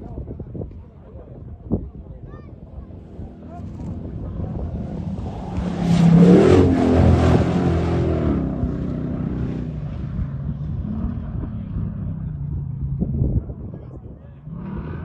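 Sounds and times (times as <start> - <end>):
rally car speeding past: 3.1 - 13.4.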